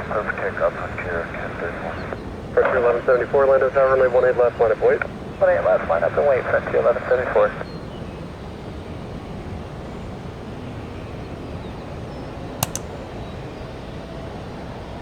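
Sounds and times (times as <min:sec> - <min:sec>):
sharp clicks: 0:12.6 - 0:13.0.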